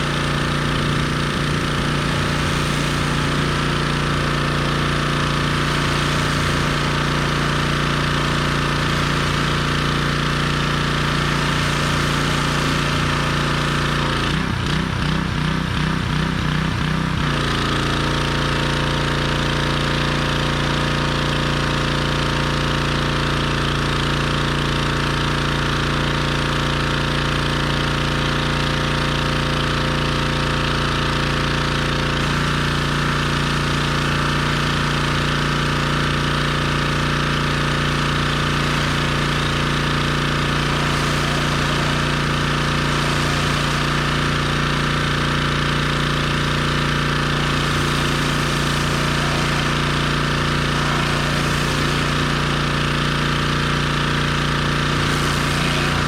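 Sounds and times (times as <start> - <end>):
gas-engine pressure washer running: 0.0 - 56.0.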